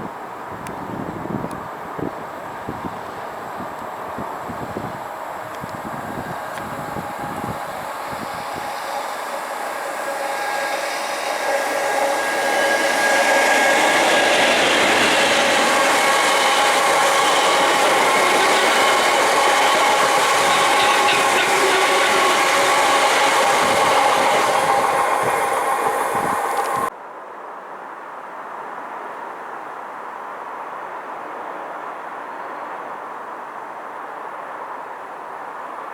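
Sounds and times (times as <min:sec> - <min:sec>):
train passing at speed: 0:00.0 - 0:26.9
steady whining tones: 0:00.2 - 0:26.9.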